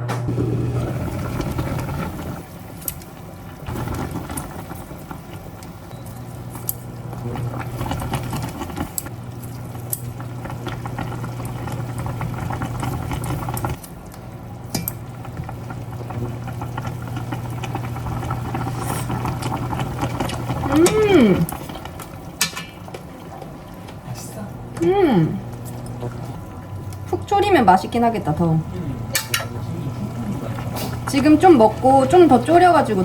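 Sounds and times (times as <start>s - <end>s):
food bubbling in a pan: 0.3s - 24.1s, 24.7s - 33.0s
low hum: 22.9s - 33.0s.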